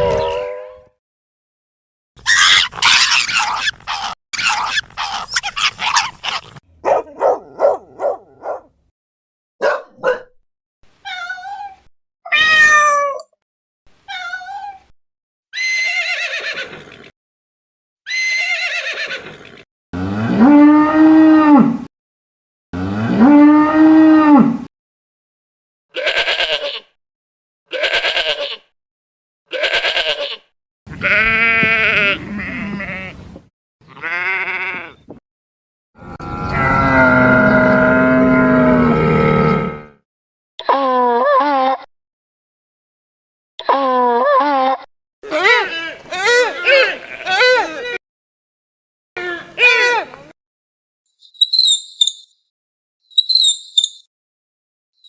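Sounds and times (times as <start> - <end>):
meow-like calls: 12.3 - 13.3, 33.9 - 35.0
short bleats: 26.0 - 26.8, 27.7 - 28.6, 29.5 - 33.2, 33.8 - 35.0, 45.3 - 47.8
noisy animal call: 33.8 - 35.1, 36.0 - 40.0, 45.2 - 48.0
cow mooing: 36.0 - 40.0.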